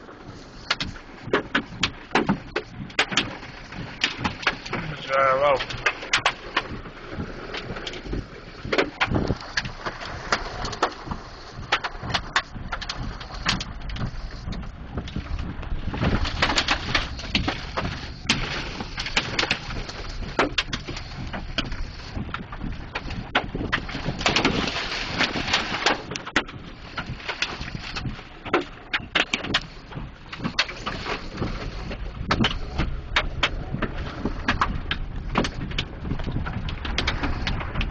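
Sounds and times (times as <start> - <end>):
heavy rain: 0.0 - 26.2
wind: 0.0 - 37.9
hail knocking on a vehicle: 0.6 - 31.0.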